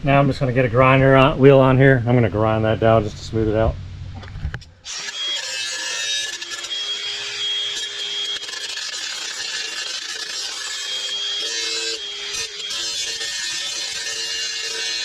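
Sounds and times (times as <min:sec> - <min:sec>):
rotary tool whine: 0:04.3 - 0:15.0
grinding wheel on metal: 0:04.9 - 0:15.0.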